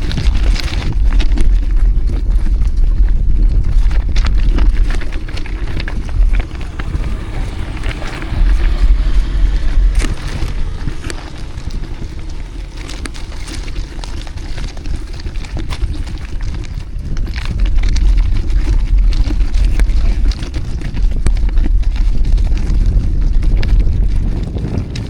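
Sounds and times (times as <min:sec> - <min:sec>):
wind buffeting microphone: 0:00.0 - 0:25.0
street traffic noise: 0:04.0 - 0:15.3.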